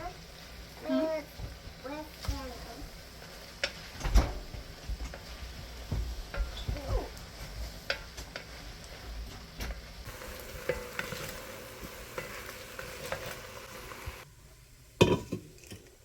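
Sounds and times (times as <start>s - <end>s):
meat sizzling in a frying pan: 0.0s - 14.3s
spoon scraping a pan: 3.1s - 4.0s, 4.9s - 9.1s, 10.1s - 14.2s.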